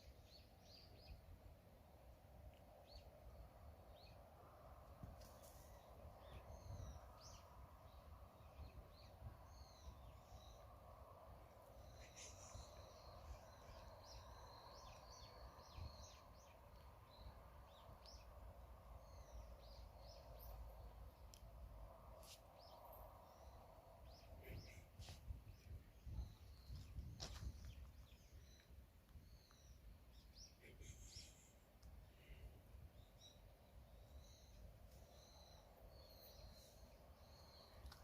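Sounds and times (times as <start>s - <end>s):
background hum: 0.0s - 38.0s
small birds chirping: 11.4s - 21.6s, 22.2s - 38.0s.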